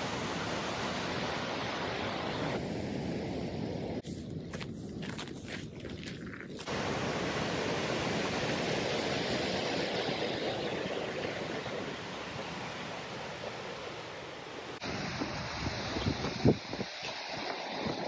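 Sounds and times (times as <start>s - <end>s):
waterfall rushing: 6.7s - 11.6s.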